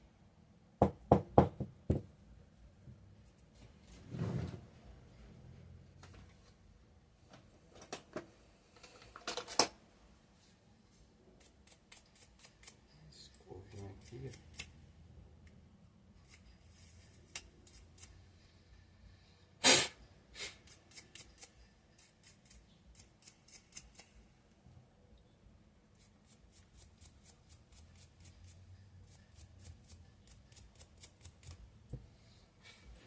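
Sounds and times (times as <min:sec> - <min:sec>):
brush bristles scratching: 0:25.9 - 0:31.6.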